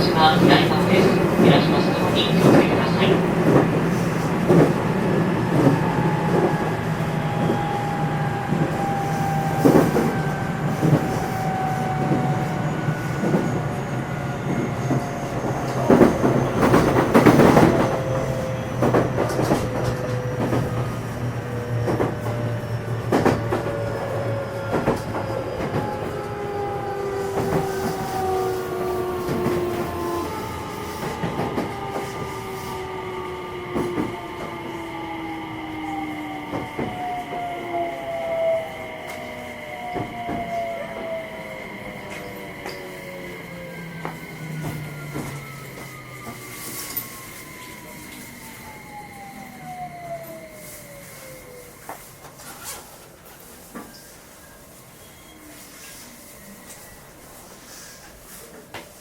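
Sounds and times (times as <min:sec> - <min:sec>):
train traction motor whine: 0:00.0 - 0:52.4
wheels rumbling on rail: 0:00.0 - 0:59.0.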